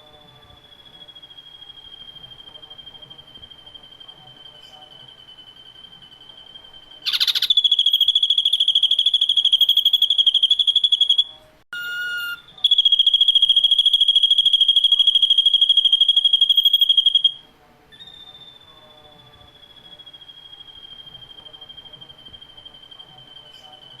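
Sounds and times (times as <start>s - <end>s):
bird singing pulsing trills: 0.0s - 17.4s
bird notes burst: 7.0s - 17.4s.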